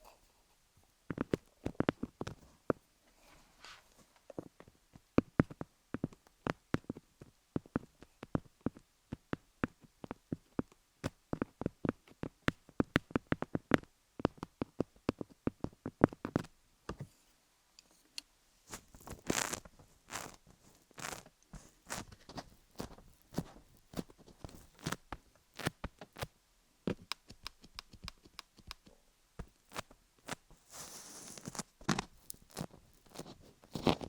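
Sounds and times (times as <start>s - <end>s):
soft scratching: 1.2s - 4.7s, 16.2s - 26.3s, 27.3s - 34.0s
pencils tapping on rhinestones: 26.9s - 30.4s.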